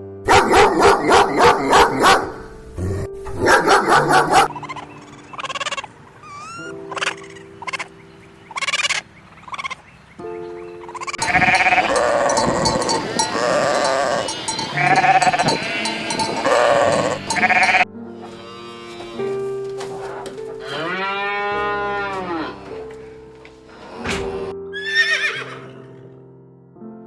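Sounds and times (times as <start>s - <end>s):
background music: 0.0s - 27.0s
farm animal bleating: 11.2s - 20.0s, 20.6s - 23.0s.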